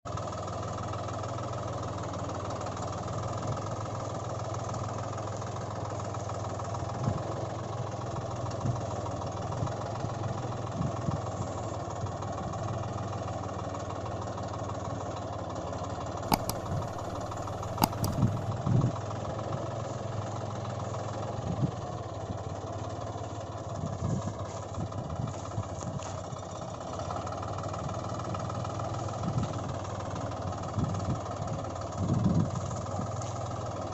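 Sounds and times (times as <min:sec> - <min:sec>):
engine idling: 0:00.1 - 0:33.9
sharp clicks: 0:16.3 - 0:18.5.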